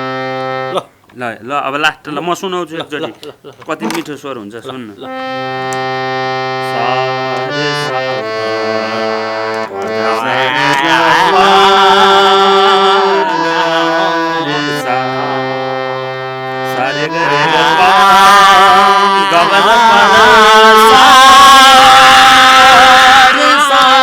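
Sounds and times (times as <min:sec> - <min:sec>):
harmonium chords: 0:00.0 - 0:01.0, 0:05.0 - 0:24.0
person singing classical melody: 0:05.1 - 0:24.0.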